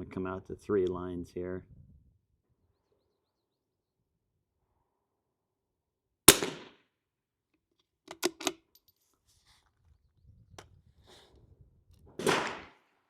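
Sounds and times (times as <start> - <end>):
rifle shot: 6.3 - 6.8, 12.2 - 12.8
sharp metallic clicks of rifle bolt: 8.1 - 8.8.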